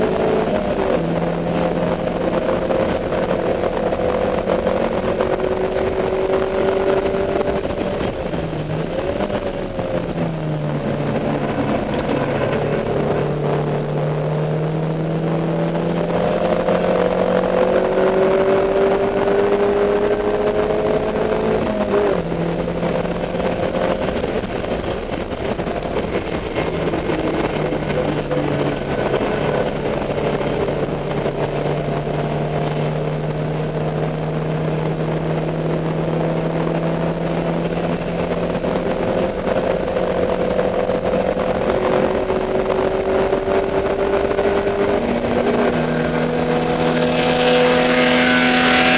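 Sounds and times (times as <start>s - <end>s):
race car engine at high revs: 0.0s - 48.9s.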